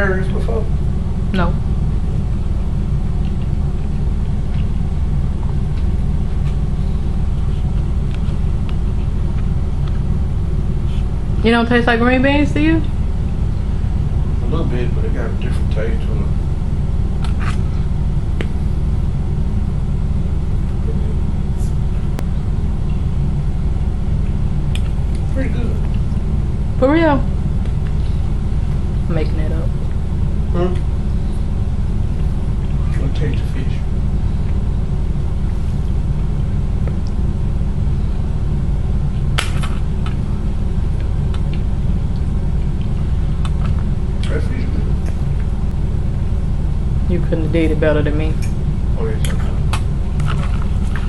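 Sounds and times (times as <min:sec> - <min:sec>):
low rumble: 0:00.0 - 0:51.0.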